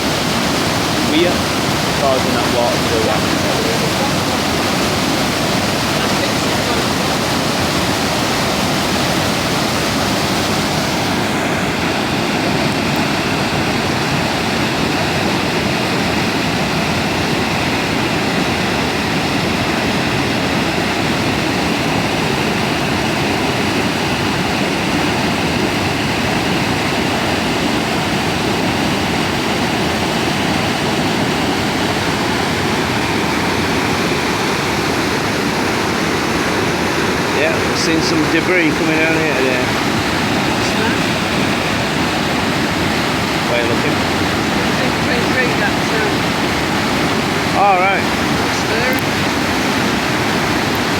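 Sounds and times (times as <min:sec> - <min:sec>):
water rushing over a weir: 0:00.0 - 0:50.9.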